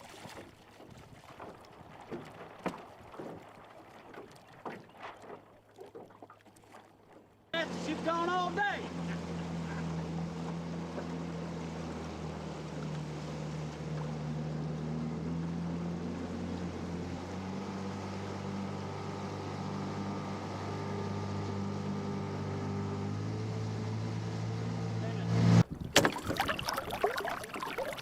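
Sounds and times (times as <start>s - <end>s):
small boat motor running: 6.7s - 25.8s.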